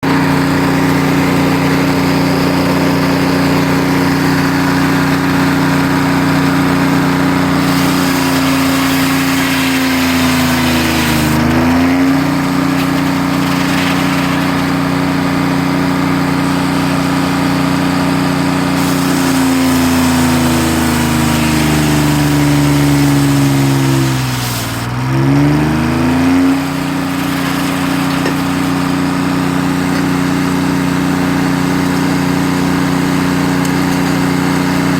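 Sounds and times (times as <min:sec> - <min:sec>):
sawmill saw humming: 0:00.0 - 0:34.9
saw hissing through wood: 0:06.6 - 0:15.1, 0:18.5 - 0:25.4.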